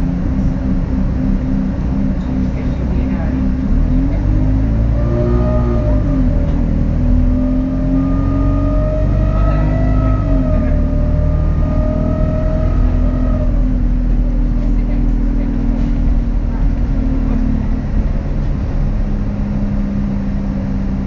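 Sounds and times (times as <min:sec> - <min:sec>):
bus diesel engine pulling: 0:00.0 - 0:21.0.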